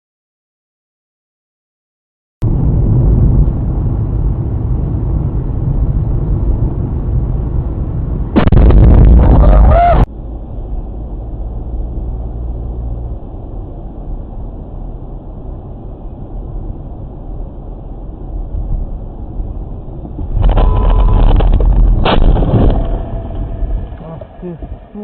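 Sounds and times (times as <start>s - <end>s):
car driving rumble: 2.4s - 25.0s.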